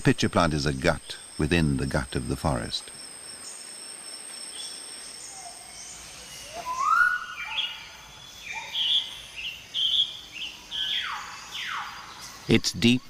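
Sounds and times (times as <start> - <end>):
whistled animal calls: 5.2 - 9.2, 10.7 - 12.2.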